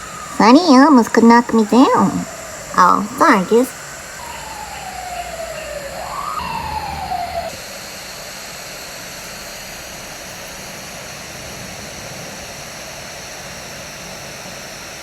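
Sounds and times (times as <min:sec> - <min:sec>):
siren-like wailing tone: 0:00.0 - 0:07.6.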